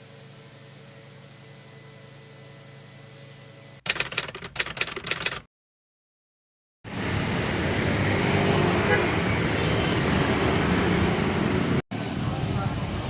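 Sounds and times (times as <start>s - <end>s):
burst of rapid clicks: 3.9s - 5.5s.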